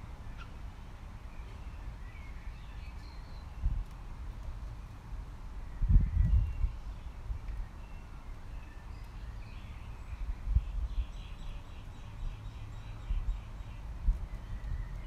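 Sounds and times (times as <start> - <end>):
birds chirping: 0.0 - 4.9, 5.6 - 15.0
wind on microphone: 5.8 - 6.9.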